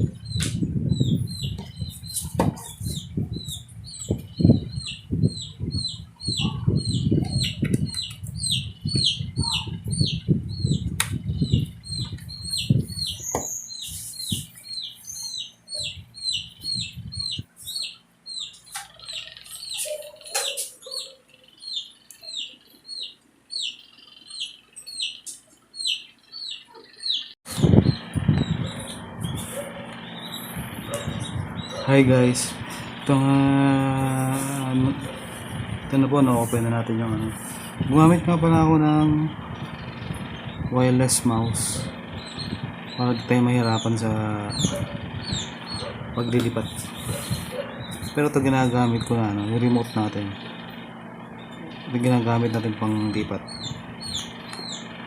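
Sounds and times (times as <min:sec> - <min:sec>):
baby chick peeping: 0:00.0 - 0:55.0
handling thumps and rustles: 0:01.6 - 0:02.9.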